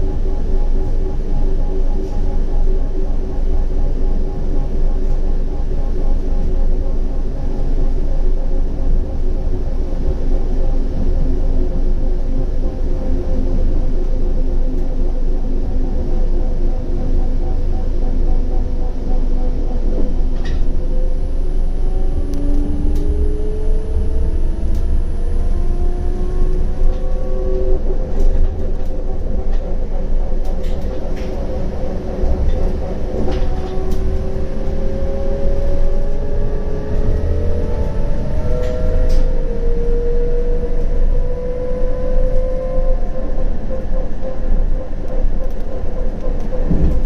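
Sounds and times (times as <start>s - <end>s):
wheels rumbling on rails: 0.0s - 47.0s
electric traction motor whine: 19.4s - 45.6s.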